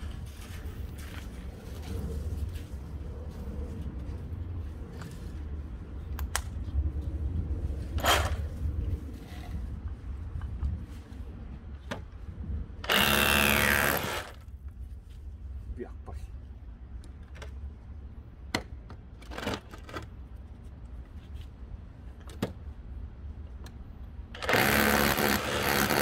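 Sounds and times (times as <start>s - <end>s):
rotary hammer drilling into concrete: 12.9s - 14.4s, 24.4s - 26.0s.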